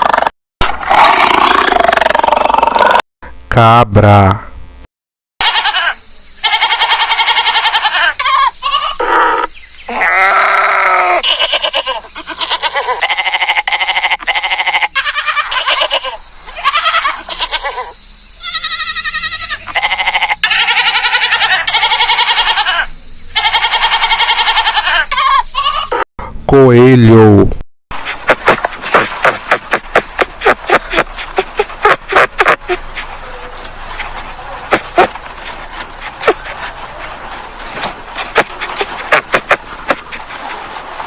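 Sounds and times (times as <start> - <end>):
goats bleating: 5.4 - 9.0, 9.9 - 26.0, 28.4 - 37.2.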